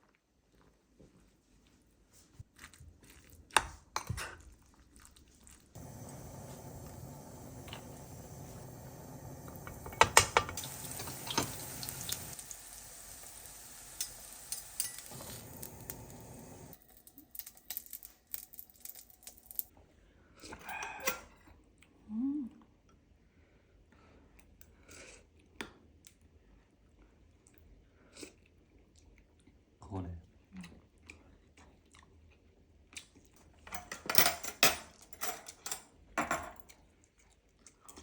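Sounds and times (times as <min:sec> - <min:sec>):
steady hiss: 0:05.8 - 0:16.8
dishes and cutlery clinking: 0:09.5 - 0:12.4, 0:13.9 - 0:15.9, 0:33.7 - 0:36.7.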